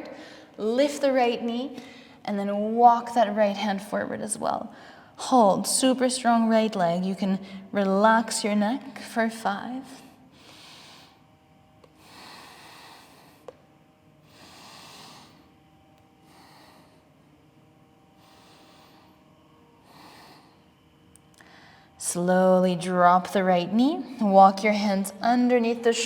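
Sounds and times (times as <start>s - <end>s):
faint slow breathing: 4.7s - 5.2s, 10.2s - 15.6s, 16.2s - 17.3s, 18.1s - 22.0s.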